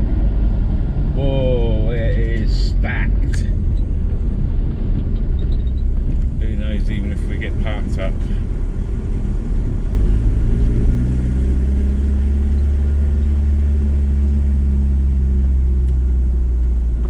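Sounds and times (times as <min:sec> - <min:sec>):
low road rumble: 0:00.0 - 0:17.0
van engine running: 0:00.0 - 0:17.0.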